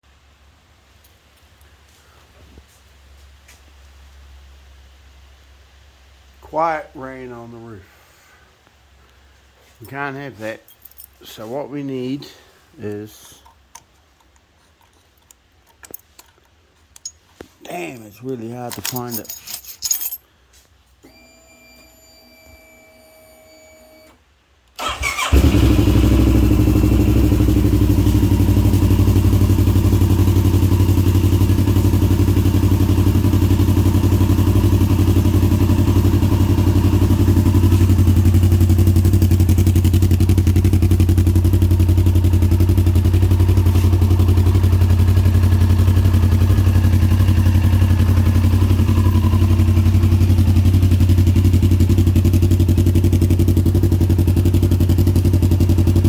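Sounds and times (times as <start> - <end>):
motorcycle engine starting and idling: 24.8 - 56.0.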